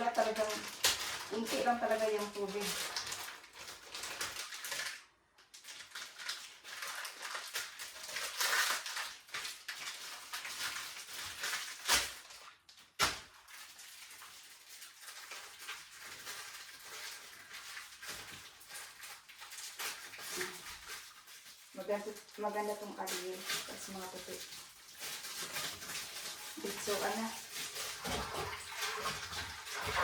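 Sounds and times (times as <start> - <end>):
laundry rustling and clattering: 14.8 - 30.0.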